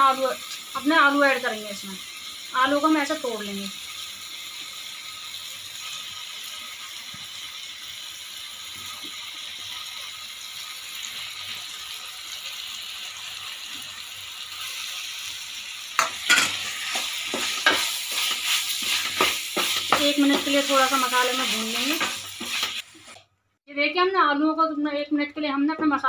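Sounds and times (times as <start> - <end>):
food sizzling in a pot: 0.0 - 23.2
wooden spoon scraping a pot: 16.3 - 23.2.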